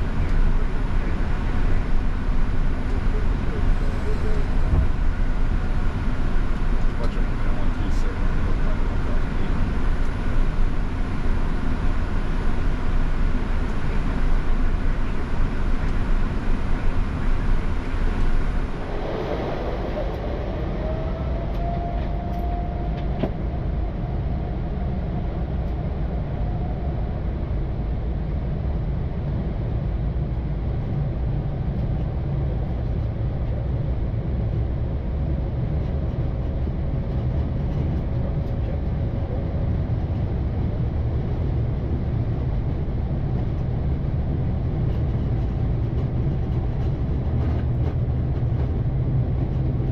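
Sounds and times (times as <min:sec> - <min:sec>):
aircraft engine rumble: 0:00.0 - 0:49.9
rising whine: 0:08.7 - 0:25.8.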